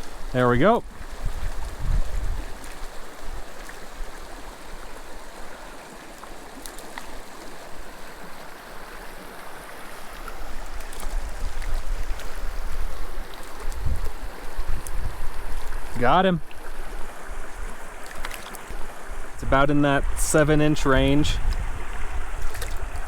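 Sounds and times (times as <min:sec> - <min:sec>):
wind buffeting microphone: 0:00.0 - 0:04.2, 0:10.4 - 0:18.0, 0:18.7 - 0:23.0
creek burbling over rocks: 0:00.0 - 0:23.0.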